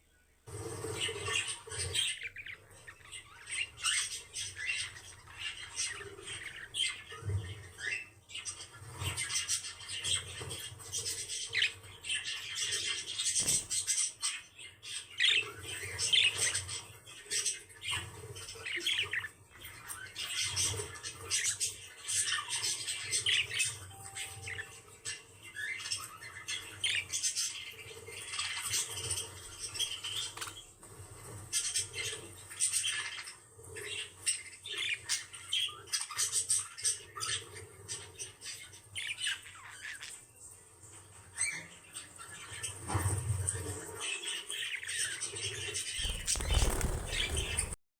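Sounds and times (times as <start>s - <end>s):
pet birds chattering: 0.8s - 30.3s, 46.0s - 47.8s.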